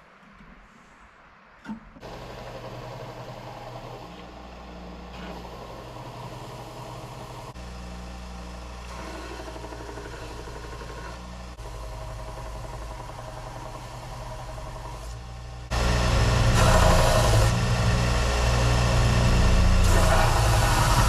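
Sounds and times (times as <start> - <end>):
motor humming: 2.0 - 21.0.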